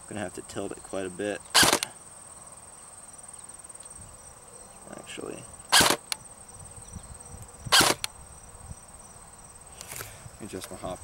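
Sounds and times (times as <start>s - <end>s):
crickets chirring: 0.0s - 11.0s
airsoft gun shot: 1.6s - 1.9s, 5.7s - 6.1s, 7.7s - 8.1s.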